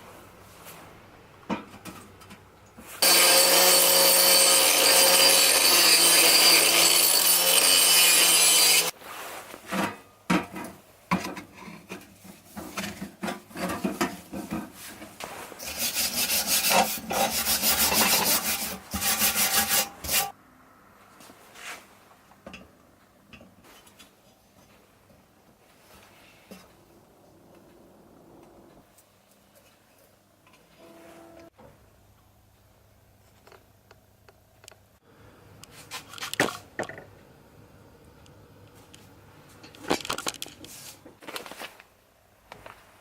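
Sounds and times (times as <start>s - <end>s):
power tool whirring: 3.0s - 8.9s
rasping scraping strokes: 15.2s - 20.3s.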